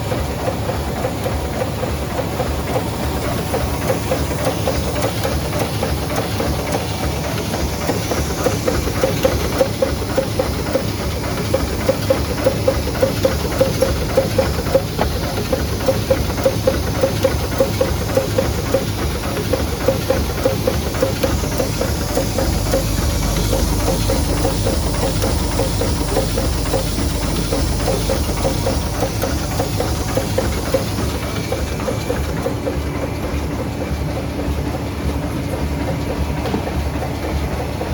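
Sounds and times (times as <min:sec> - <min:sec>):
sewing machine running: 0:00.0 - 0:33.3
sewing machine stitch clacking: 0:02.7 - 0:32.7.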